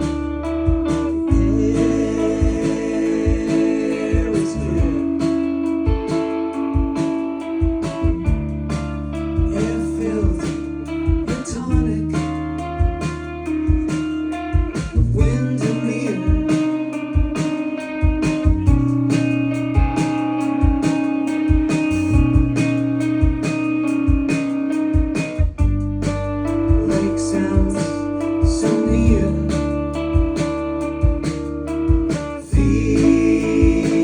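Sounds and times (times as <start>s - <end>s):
drum beat: 0.0s - 34.0s
electric bass: 0.0s - 34.0s
guitars: 0.0s - 34.0s.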